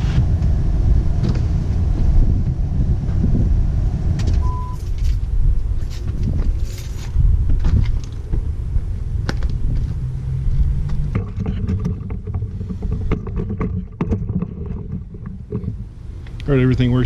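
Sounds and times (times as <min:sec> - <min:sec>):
steady low rumble: 0:00.0 - 0:17.0
sharp clicks and clunks: 0:04.2 - 0:08.4, 0:10.8 - 0:16.5.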